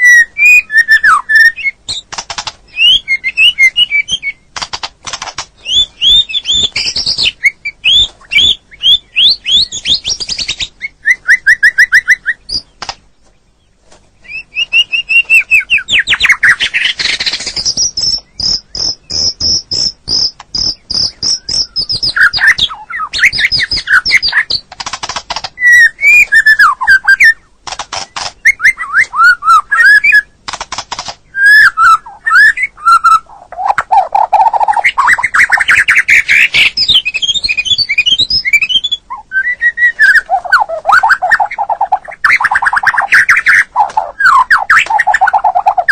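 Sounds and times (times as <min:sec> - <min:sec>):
songbird whistled song: 0:00.0 - 0:30.4, 0:31.0 - 0:45.9
bird clicking chatter: 0:01.9 - 0:02.9, 0:04.6 - 0:08.0, 0:11.7 - 0:13.0, 0:15.1 - 0:26.8, 0:27.6 - 0:29.2, 0:29.8 - 0:31.3.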